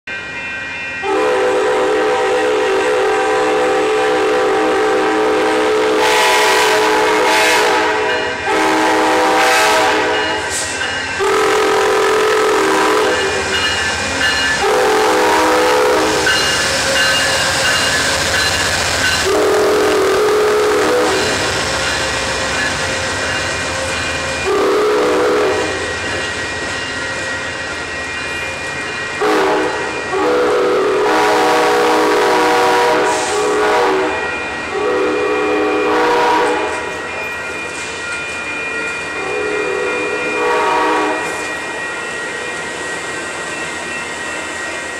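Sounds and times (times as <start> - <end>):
train rolling rumble: 0.1 - 44.9
train horn: 1.0 - 10.6, 11.2 - 13.5, 14.6 - 16.5, 19.2 - 21.6, 24.4 - 25.9, 29.2 - 36.9, 39.2 - 41.5.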